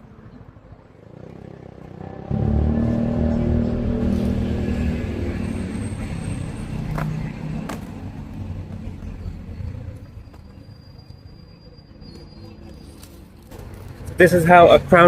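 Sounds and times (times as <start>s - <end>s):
vehicle engine running: 1.3s - 10.2s.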